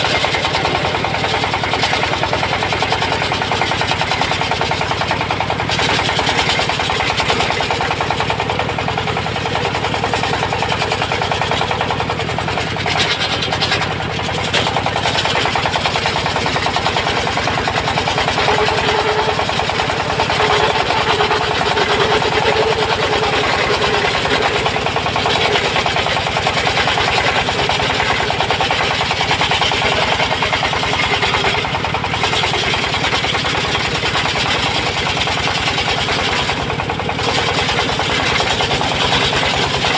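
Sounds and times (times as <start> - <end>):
sawmill blade ripping wood: 12.8 - 39.9.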